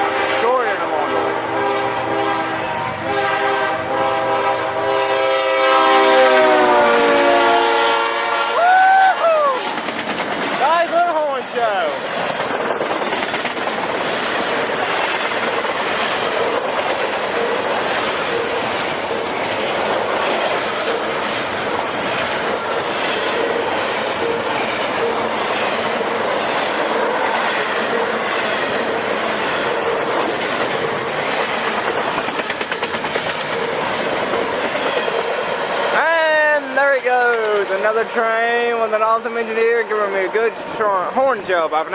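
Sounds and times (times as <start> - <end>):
train wheels rushing on rail: 0.0 - 41.9
clickety-clack over rail joints: 9.6 - 39.1.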